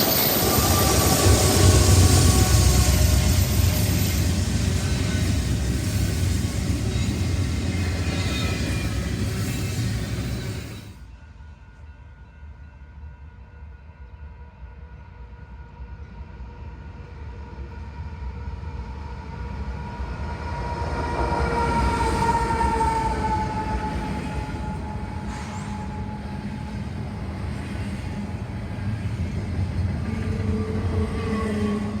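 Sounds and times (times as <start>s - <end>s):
steady high train tones: 0.0s - 32.0s
train rumbling by: 0.0s - 32.0s.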